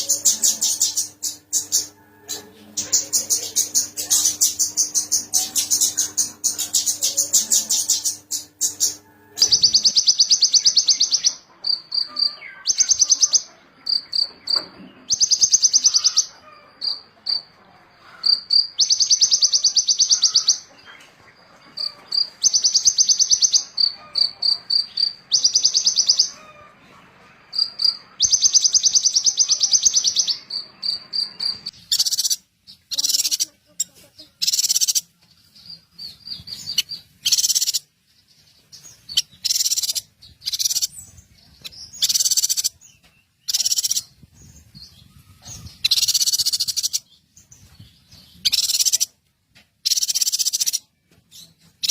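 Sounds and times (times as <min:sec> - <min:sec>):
songbird trilling: 0:02.8 - 0:17.5, 0:18.1 - 0:20.7, 0:21.8 - 0:26.6, 0:27.5 - 0:35.1, 0:36.1 - 0:37.9, 0:39.0 - 0:44.2, 0:45.1 - 0:47.1, 0:48.4 - 0:49.2, 0:49.8 - 0:50.9.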